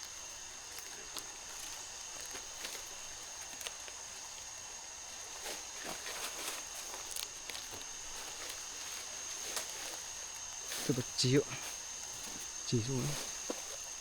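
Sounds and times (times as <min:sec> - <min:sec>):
rustles and snaps in undergrowth: 0:00.0 - 0:14.0
high-pitched insect drone: 0:04.0 - 0:14.0.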